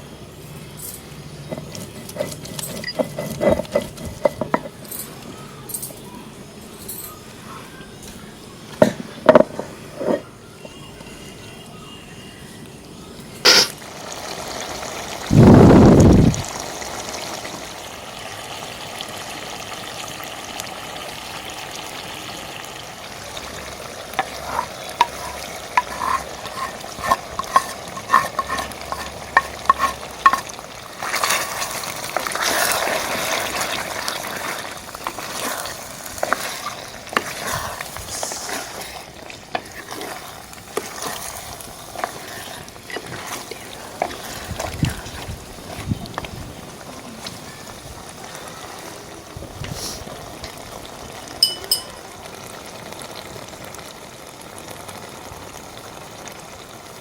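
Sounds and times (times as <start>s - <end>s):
spoon scraping a pot: 1.4s - 4.8s, 9.4s - 10.8s, 24.1s - 33.3s, 34.1s - 45.9s
curry sizzling in a pot: 13.0s - 57.0s
light clinks: 51.4s - 52.0s.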